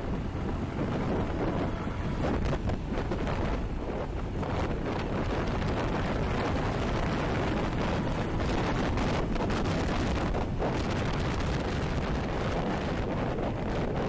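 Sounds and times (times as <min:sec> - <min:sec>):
motorcycle engine: 0:00.0 - 0:14.0
wind buffeting microphone: 0:00.0 - 0:14.0.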